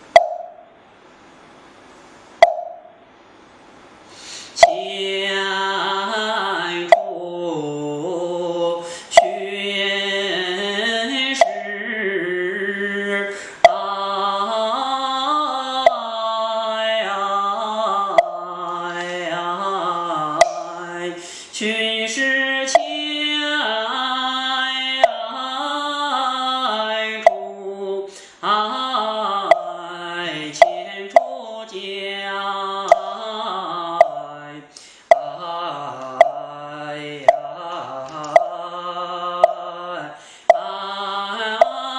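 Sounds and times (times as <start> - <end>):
sharp percussion knock: 0.1 - 0.7, 2.4 - 3.0, 9.2 - 9.6, 11.4 - 11.8, 20.4 - 20.8, 30.6 - 31.4, 37.3 - 37.6
man chanting: 4.6 - 41.9.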